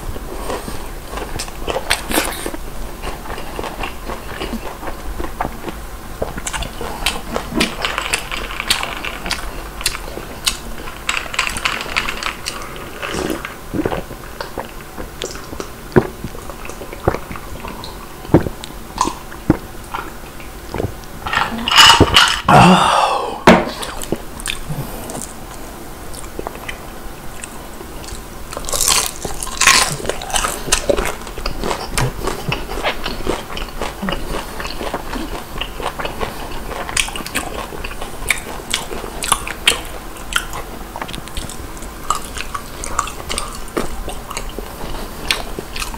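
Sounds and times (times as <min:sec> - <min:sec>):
chewing crispy fried chicken: 0:00.1 - 0:22.2, 0:23.8 - 0:45.9
wet mouth sounds: 0:01.3 - 0:02.6, 0:13.1 - 0:25.4.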